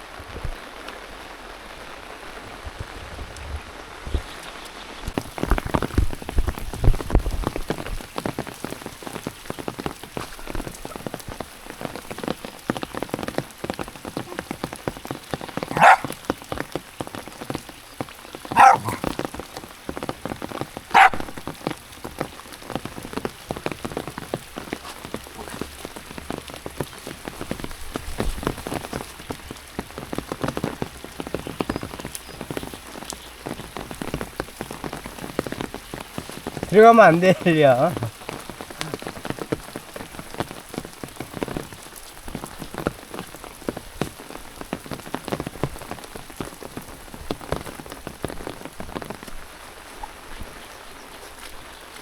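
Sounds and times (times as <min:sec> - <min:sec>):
raindrops ticking: 0:00.0 - 0:52.0
steady rain: 0:00.0 - 0:52.0
dog barking: 0:15.6 - 0:16.2, 0:18.5 - 0:19.2, 0:20.9 - 0:21.4.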